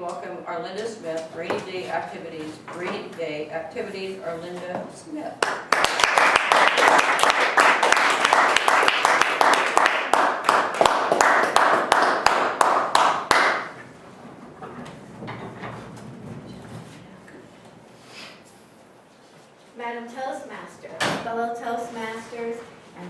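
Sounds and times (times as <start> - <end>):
audience applauding: 5.4 - 13.8.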